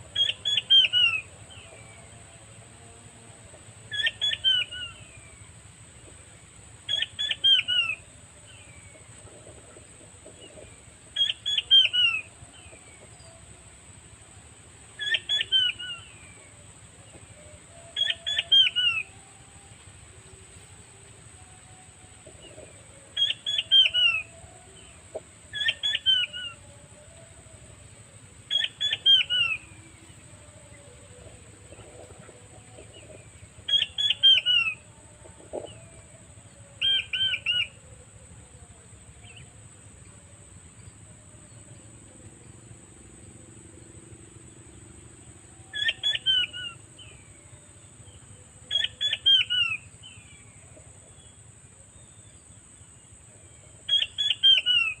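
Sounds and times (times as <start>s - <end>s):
quail calling: 0.0s - 2.0s, 3.9s - 5.3s, 6.9s - 13.1s, 15.0s - 19.1s, 22.2s - 38.0s, 45.7s - 46.8s, 48.7s - 49.8s, 53.9s - 55.0s.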